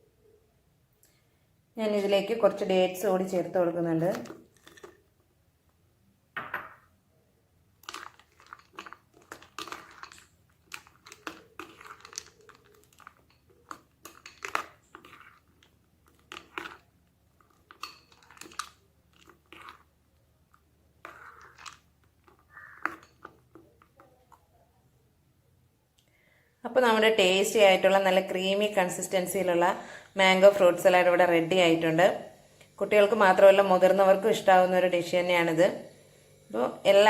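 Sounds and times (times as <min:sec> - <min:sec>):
spoon stirring wet fruit salad: 0:03.2 - 0:05.2, 0:07.7 - 0:24.6.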